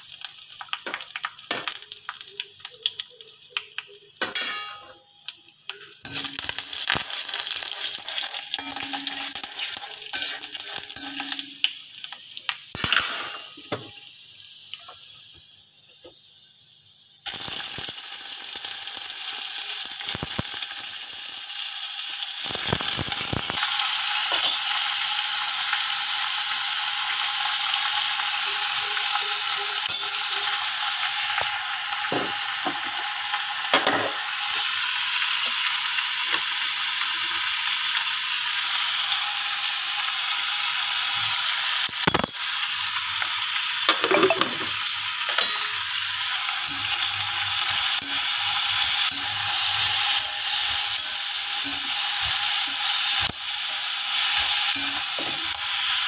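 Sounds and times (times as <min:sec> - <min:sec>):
food sizzling in oil: 0:00.0 - 0:56.0
metal utensils scraping a pan: 0:04.2 - 0:05.0, 0:06.0 - 0:11.6, 0:43.9 - 0:53.4.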